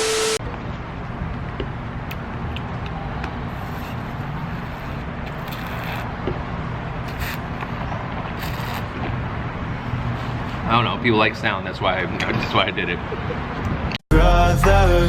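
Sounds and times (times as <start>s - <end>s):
brief traffic hisses: 0.0s - 0.4s
road traffic engine drone: 0.0s - 14.0s.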